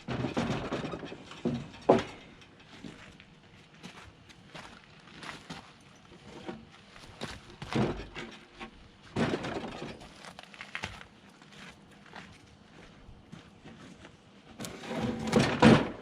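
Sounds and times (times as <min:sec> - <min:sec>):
wooden timbers knocking together: 0:00.0 - 0:02.3, 0:07.6 - 0:10.2.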